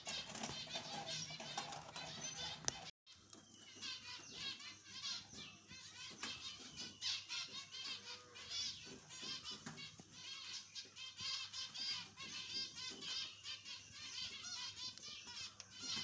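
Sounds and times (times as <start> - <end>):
finches chirping: 0.0 - 16.0.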